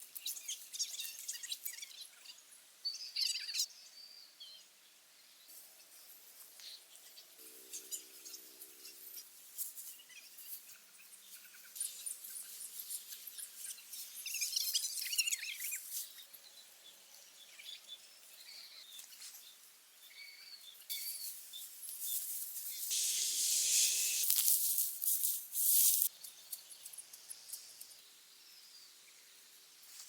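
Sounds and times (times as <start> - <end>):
small clicks: 23.7 - 28.0.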